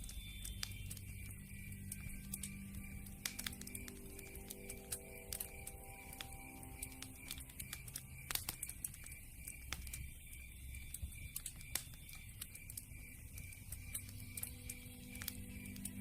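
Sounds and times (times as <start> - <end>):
soft low rumble: 0.0 - 9.0
campfire pops and snaps: 0.0 - 16.0.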